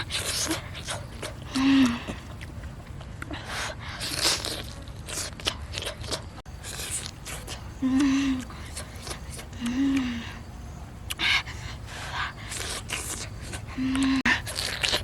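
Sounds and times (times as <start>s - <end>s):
person chewing and crunching food: 0.0s - 10.1s, 11.8s - 15.0s.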